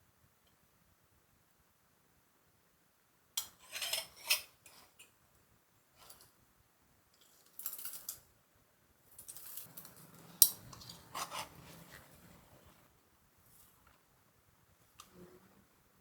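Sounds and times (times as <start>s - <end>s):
utensils and dishes clinking: 9.2s - 11.7s.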